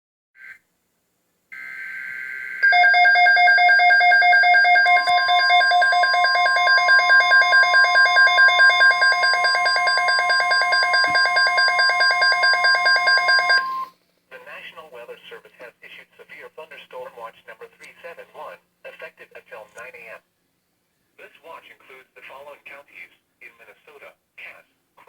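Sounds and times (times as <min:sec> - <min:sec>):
steady warning tone: 0:01.6 - 0:13.9
rapidly pulsing alarm beep: 0:02.4 - 0:13.9.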